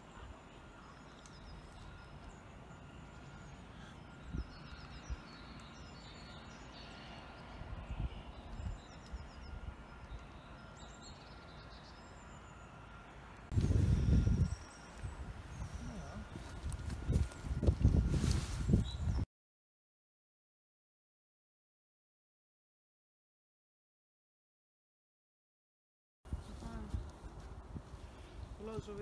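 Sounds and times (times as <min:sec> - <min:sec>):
small birds chirping: 0:00.0 - 0:18.1, 0:18.7 - 0:19.2, 0:26.3 - 0:29.0.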